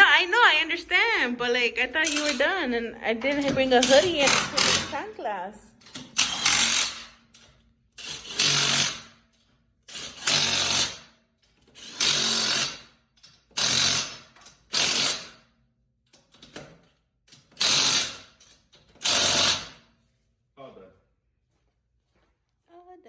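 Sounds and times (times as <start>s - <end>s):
impact wrench bursts: 3.3s - 5.0s, 5.9s - 15.5s, 17.4s - 19.9s.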